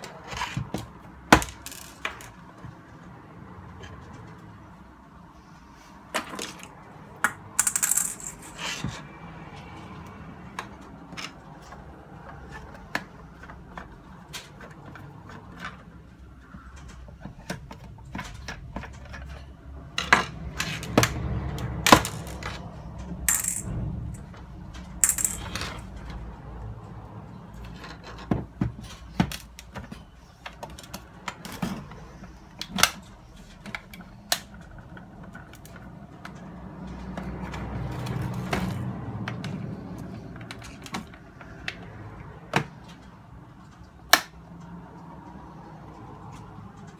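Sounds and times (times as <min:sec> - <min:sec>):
plastic parts clicking and clattering: 0:00.0 - 0:03.1, 0:06.1 - 0:09.0, 0:10.5 - 0:26.2, 0:27.5 - 0:41.9.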